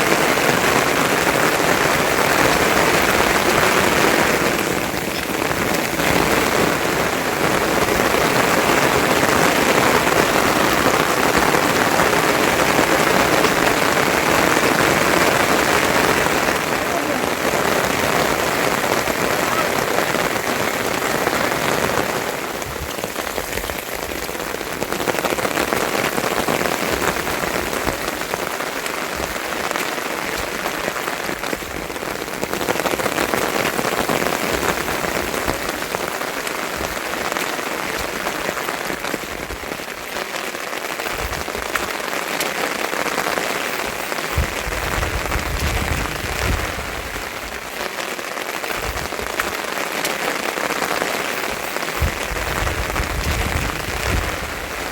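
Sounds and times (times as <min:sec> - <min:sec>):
steady rain falling: 0:00.0 - 0:54.9
faint low thuds: 0:41.1 - 0:41.9, 0:44.3 - 0:47.7, 0:48.7 - 0:49.6, 0:52.0 - 0:54.8.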